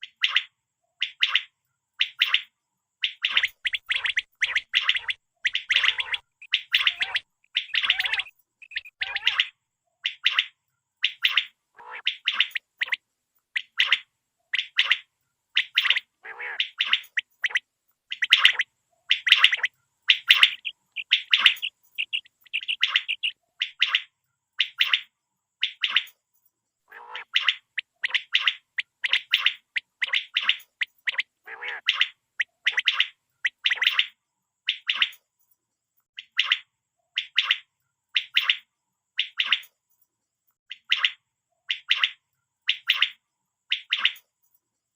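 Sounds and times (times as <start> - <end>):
quail calling: 0.0 - 13.0, 13.6 - 26.1, 26.9 - 34.1.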